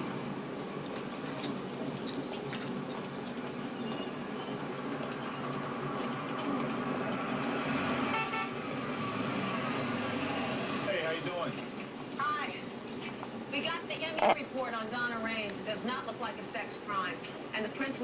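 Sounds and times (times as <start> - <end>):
city street traffic: 0.0 - 18.0
car horn honking: 8.0 - 8.6.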